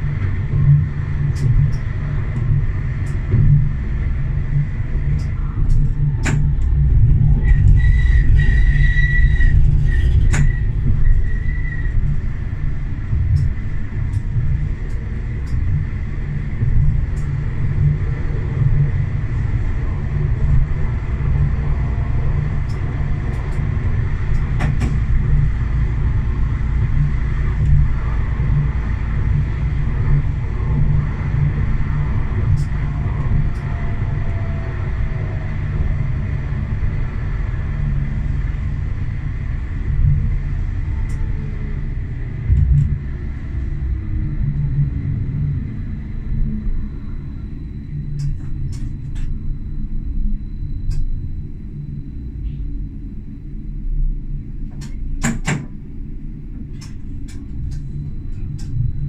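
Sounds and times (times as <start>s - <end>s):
tram rumbling on rails: 0.0s - 59.0s
high wheel squeal: 7.4s - 12.0s.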